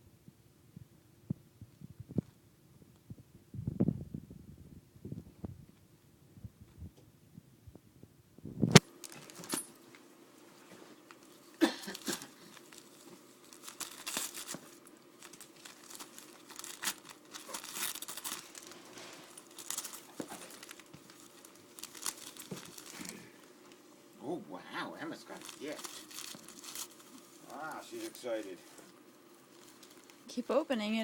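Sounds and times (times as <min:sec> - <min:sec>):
wrapping paper crinkling and tearing: 0:08.8 - 0:09.6, 0:11.1 - 0:23.9, 0:25.0 - 0:30.4.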